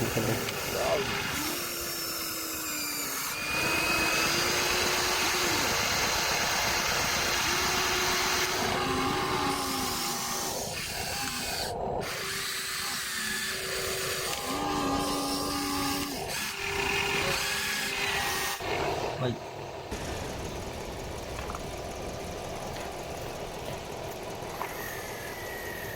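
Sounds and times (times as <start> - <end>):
toy excavator motors whining: 0.0 - 18.7, 21.2 - 25.9.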